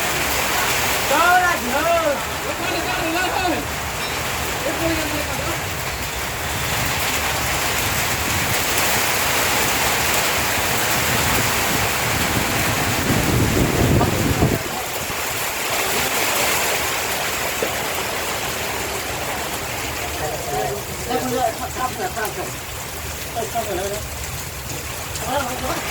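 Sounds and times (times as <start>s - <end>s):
heavy rain falling: 0.0s - 25.9s
wind rumbling on microphone: 5.6s - 16.2s.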